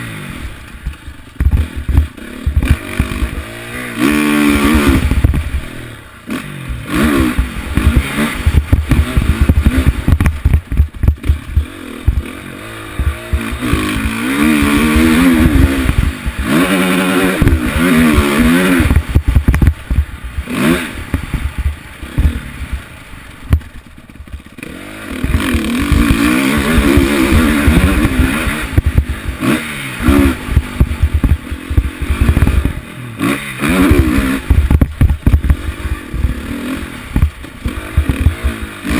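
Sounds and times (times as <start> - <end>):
off-road engine revving: 0.0 - 38.9
rattles and knocks over rough ground: 0.6 - 3.6, 17.3 - 20.4, 30.1 - 32.8, 34.1 - 36.5, 37.1 - 38.7.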